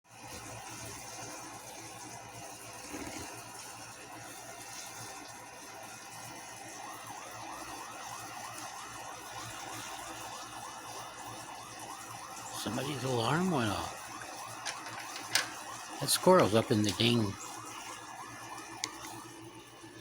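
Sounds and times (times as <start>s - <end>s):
electronic alarm warbling: 11.6s - 18.5s.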